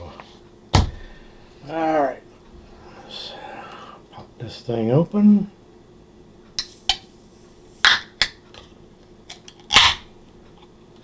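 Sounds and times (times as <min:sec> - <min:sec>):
beer bottle gas pops: 0:09.7 - 0:10.1.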